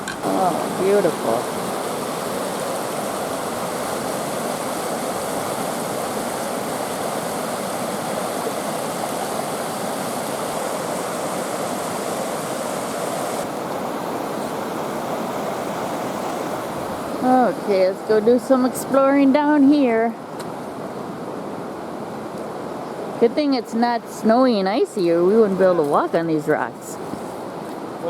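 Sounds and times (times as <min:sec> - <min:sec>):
water rushing over rocks: 0:00.0 - 0:17.9.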